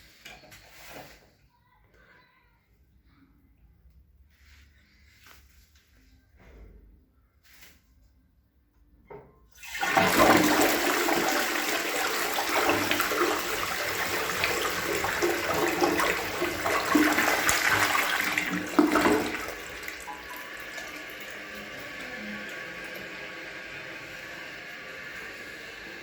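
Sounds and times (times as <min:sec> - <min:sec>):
toilet flush click: 0:09.6 - 0:26.0
toilet flushing water rush: 0:09.6 - 0:26.0.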